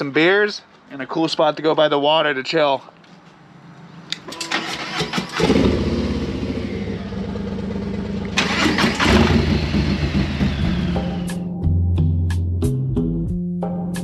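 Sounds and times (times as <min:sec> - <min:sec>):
motorcycle engine running: 0:05.4 - 0:11.3.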